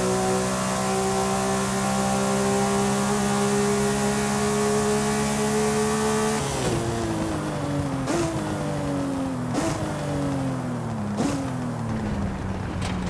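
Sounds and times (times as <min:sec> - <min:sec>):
car engine revving: 0:00.0 - 0:10.5, 0:11.1 - 0:13.0.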